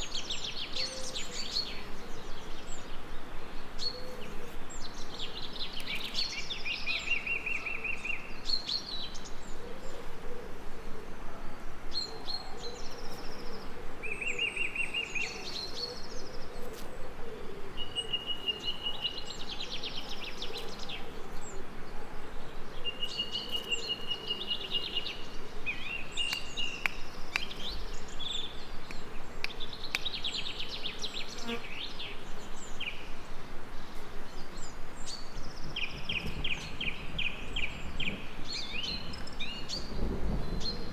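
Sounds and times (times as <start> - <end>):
songbirds trilling and chirping: 0.0 - 40.9
bee buzzing: 26.0 - 32.2.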